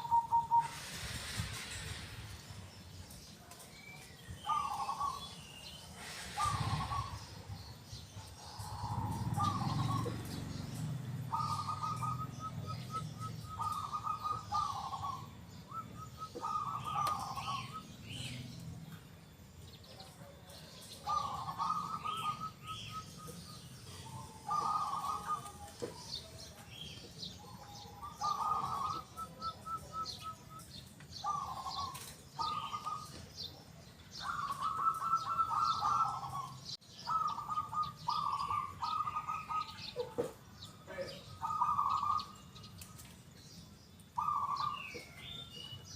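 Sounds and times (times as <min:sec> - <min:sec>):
dove cooing: 0:00.0 - 0:01.2, 0:04.4 - 0:05.4, 0:06.0 - 0:18.4, 0:20.9 - 0:26.3, 0:27.3 - 0:33.2, 0:34.2 - 0:40.4, 0:41.2 - 0:42.5, 0:44.2 - 0:45.4
small birds chirping: 0:00.0 - 0:45.9.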